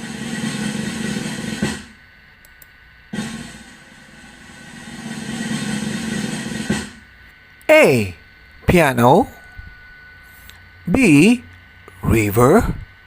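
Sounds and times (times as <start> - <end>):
drums with cymbals: 0.0 - 2.0, 3.1 - 7.2.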